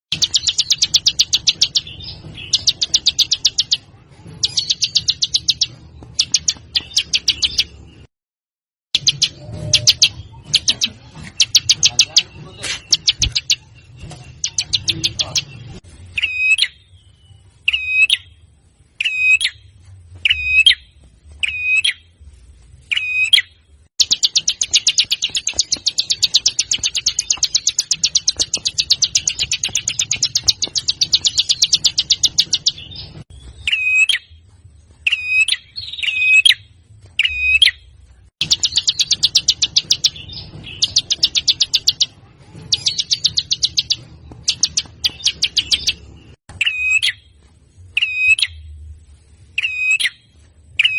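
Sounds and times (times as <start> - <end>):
songbird rattling trills: 0.1 - 3.8, 4.4 - 7.8, 24.0 - 32.9, 38.4 - 46.0
songbird call notes: 49.6 - 50.9.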